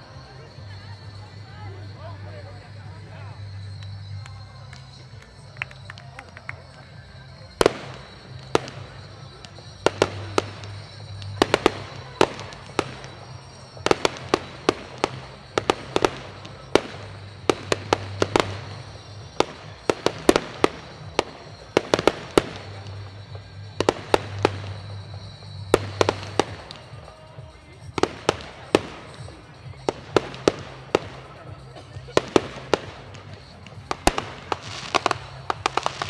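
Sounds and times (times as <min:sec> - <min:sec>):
firework shells bursting: 0:32.1 - 0:36.0.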